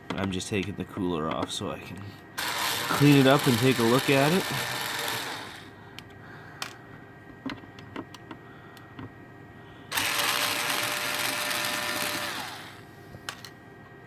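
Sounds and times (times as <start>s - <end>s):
electric screwdriver whirring: 2.4s - 5.7s, 9.9s - 12.8s.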